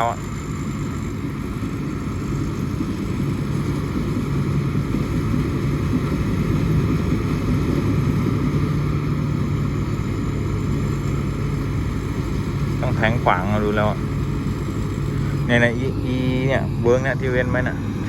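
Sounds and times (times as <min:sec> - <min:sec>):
combine harvester engine droning: 0:00.0 - 0:18.0.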